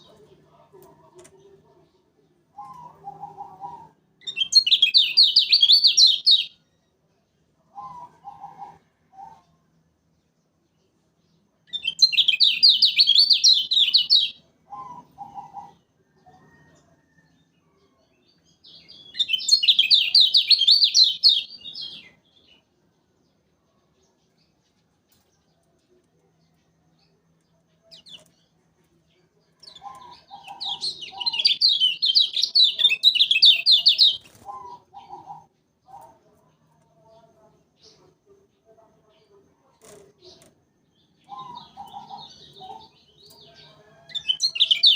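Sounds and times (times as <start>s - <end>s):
bird chattering trills: 29.7s - 36.2s.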